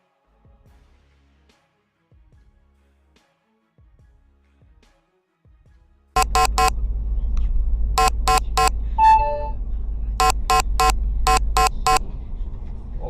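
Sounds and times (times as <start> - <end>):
car horn short blasts: 6.2 - 6.7, 8.0 - 9.6, 10.2 - 12.0
long horn tone: 6.2 - 12.1
moving car rumble: 6.2 - 13.0.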